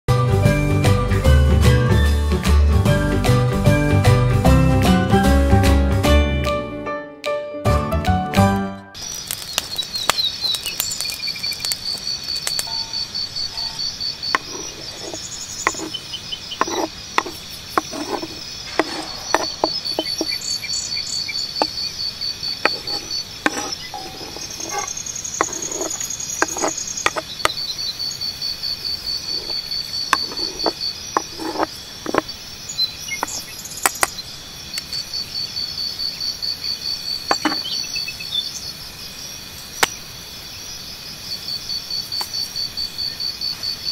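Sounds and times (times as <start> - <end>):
insects chirping: 9.0 - 43.9.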